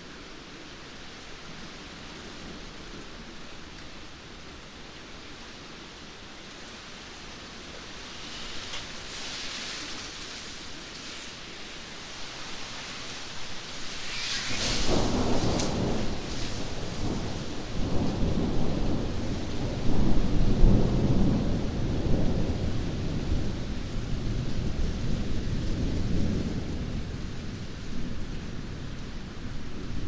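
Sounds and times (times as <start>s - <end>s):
steady rain: 0.0s - 30.0s
thunder rumbling: 13.9s - 30.0s.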